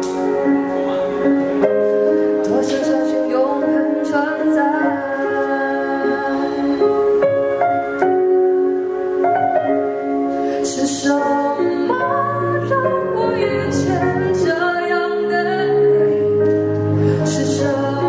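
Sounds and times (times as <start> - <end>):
instrumental backing with bass: 0.0 - 18.0
woman singing: 2.4 - 7.2, 10.5 - 18.0.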